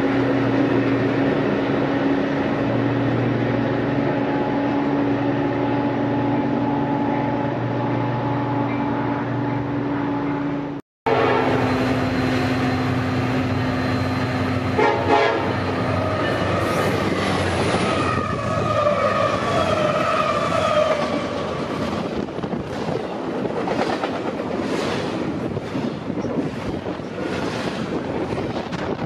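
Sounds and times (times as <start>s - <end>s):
diesel locomotives passing: 0.0s - 29.0s
train horn: 11.1s - 11.9s, 14.6s - 15.7s.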